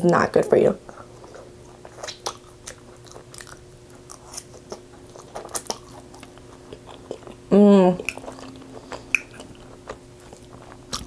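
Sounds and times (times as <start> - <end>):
faint steady hum: 0.0 - 11.0
wet chewing mouth clicks: 1.9 - 7.4, 8.0 - 11.0.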